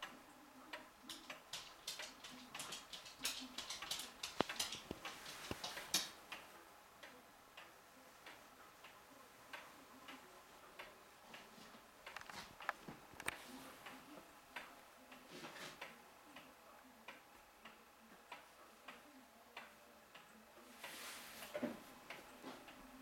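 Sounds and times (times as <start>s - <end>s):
small sharp clicks and taps: 0.8s - 6.5s.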